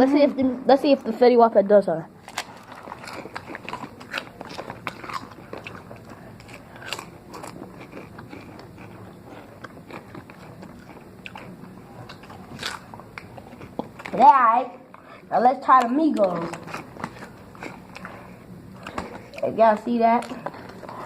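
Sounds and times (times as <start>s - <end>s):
potato chips crunching: 2.2s - 14.2s.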